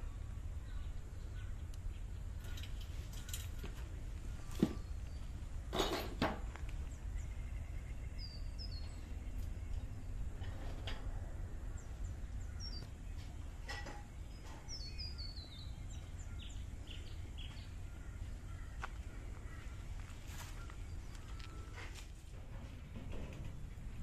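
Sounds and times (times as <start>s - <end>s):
birds chirping: 0.0s - 24.0s
steady low rumble: 6.4s - 13.6s, 14.2s - 24.0s.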